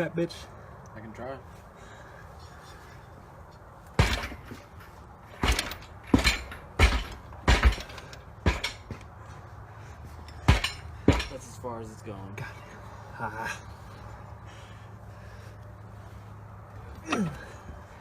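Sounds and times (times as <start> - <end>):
heavy thuds of kicks on engine: 4.0 - 4.7, 5.3 - 9.0, 10.4 - 11.4.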